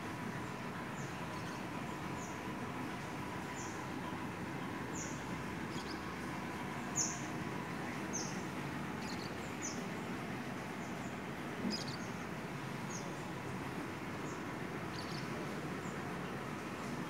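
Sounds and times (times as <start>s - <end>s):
small bird chirping: 5.0s - 6.0s, 9.0s - 9.8s, 11.6s - 12.2s.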